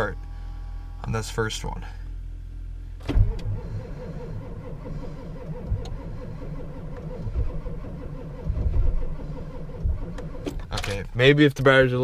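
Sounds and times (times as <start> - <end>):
diesel engine cranking on starter: 3.0 - 12.0.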